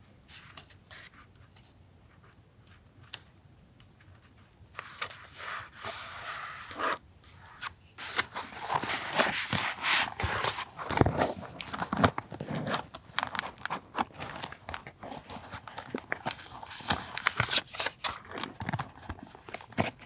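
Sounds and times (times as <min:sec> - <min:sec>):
paper rustling: 0:04.8 - 0:20.0.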